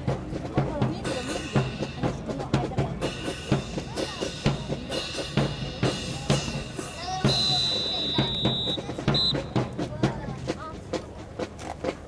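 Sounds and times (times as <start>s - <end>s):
sharp drum strikes: 0.2s - 10.3s.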